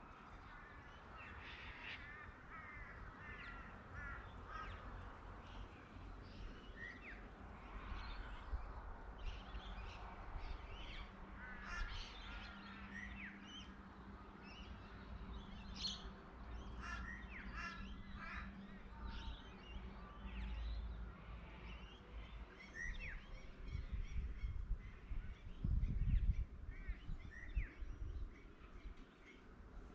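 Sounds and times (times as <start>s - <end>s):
wild birds chirping: 9.2s - 29.9s.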